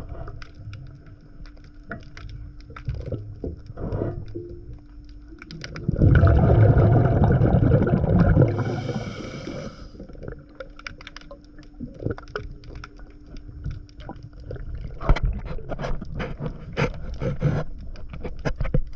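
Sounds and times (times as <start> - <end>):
faint steady hum: 0.0 - 18.9
underwater clicks and crackles: 0.0 - 18.9
diver exhaling bubbles: 5.8 - 10.5
regulator inhale hiss: 8.5 - 10.1.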